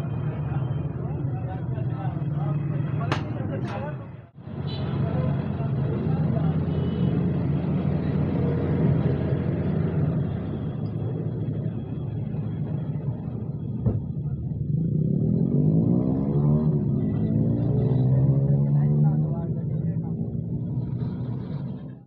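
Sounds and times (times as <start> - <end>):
car engine running and revving: 12.5 - 22.0.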